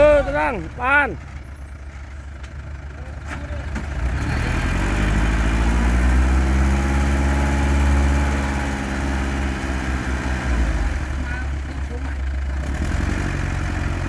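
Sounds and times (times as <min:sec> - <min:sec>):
heavy diesel engine revving: 0:00.0 - 0:01.2, 0:02.6 - 0:14.0.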